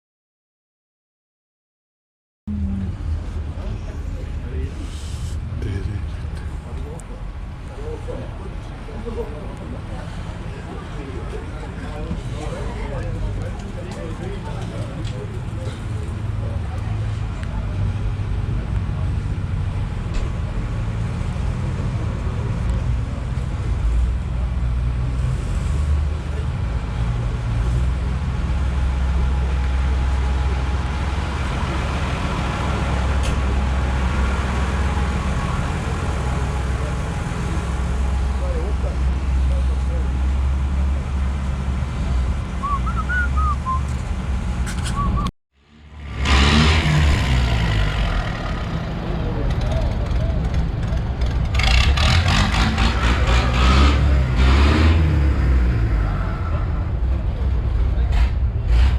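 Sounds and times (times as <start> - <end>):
tractor engines idling: 2.9 - 58.9
high whistle-like chirps: 42.6 - 43.9.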